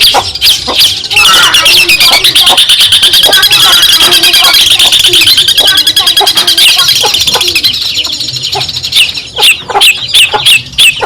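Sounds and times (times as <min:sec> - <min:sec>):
bird singing harsh chattering: 0:00.0 - 0:11.0.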